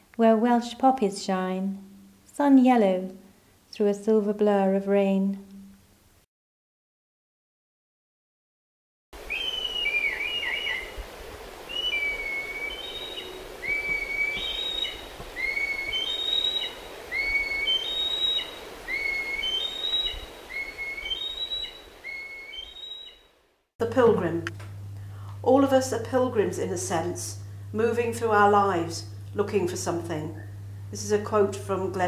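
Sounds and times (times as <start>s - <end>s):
birdsong whistled notes: 9.2s - 11.0s, 11.7s - 23.4s.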